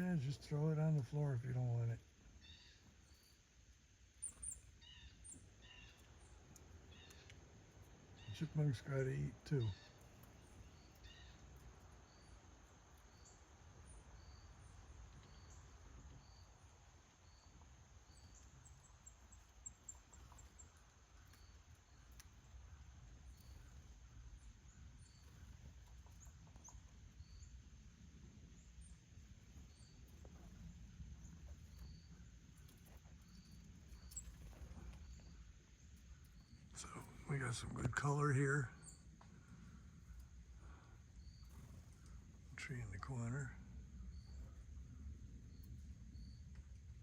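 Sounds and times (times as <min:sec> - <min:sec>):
faint outdoor hum: 0:00.0 - 0:47.0
faint high chirp: 0:04.2 - 0:06.1, 0:28.6 - 0:35.5.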